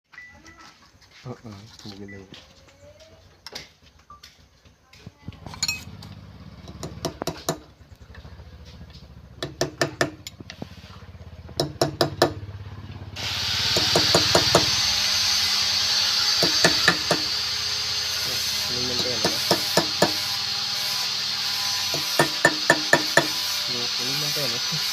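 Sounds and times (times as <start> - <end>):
knocks on wood: 6.7 - 7.7, 9.4 - 10.2, 13.7 - 14.8, 16.4 - 17.3
loud steady hiss: 13.2 - 24.9.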